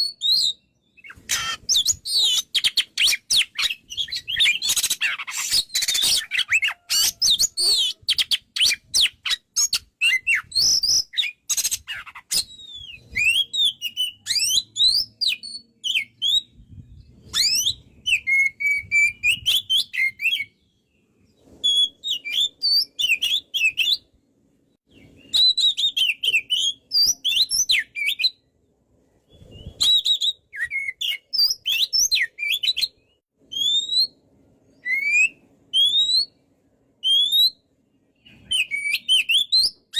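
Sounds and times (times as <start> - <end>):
bird whistled song phrases: 0.0 - 20.8, 21.4 - 24.1, 24.9 - 28.5, 29.2 - 36.4, 37.0 - 39.9
bird harsh chattering: 1.0 - 10.2.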